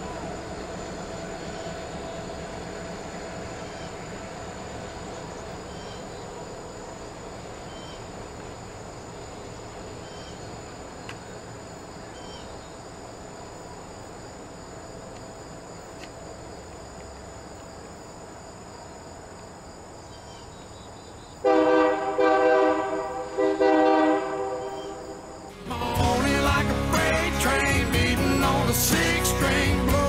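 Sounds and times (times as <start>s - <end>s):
faint insect chirps: 0.0s - 21.6s, 22.8s - 25.5s
locomotive air horn blasts: 21.4s - 25.5s.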